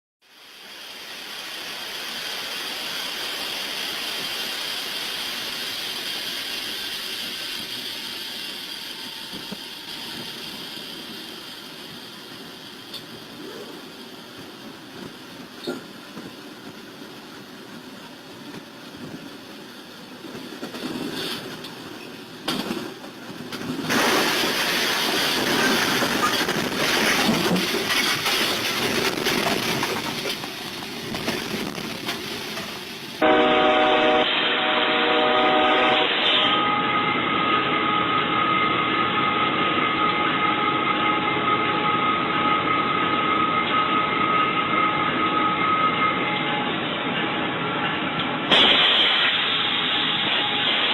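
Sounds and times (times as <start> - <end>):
train passing: 0.2 - 50.9.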